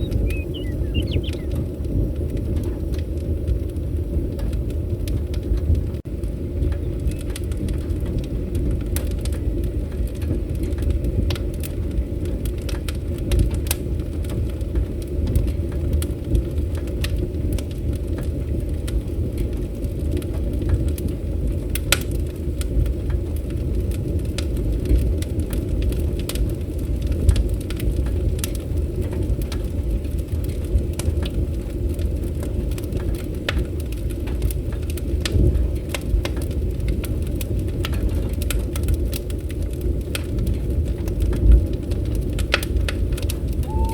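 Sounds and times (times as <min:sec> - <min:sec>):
low rumble: 0:00.0 - 0:06.0, 0:43.1 - 0:43.9
wood fire crackling: 0:00.0 - 0:43.9.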